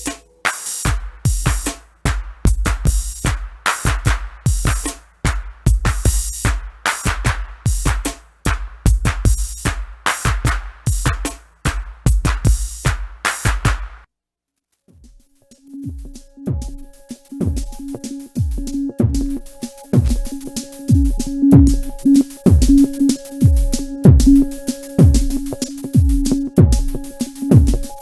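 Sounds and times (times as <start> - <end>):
drum machine pattern: 0.0 - 14.0, 15.0 - 28.0
held synth tones: 15.4 - 28.0.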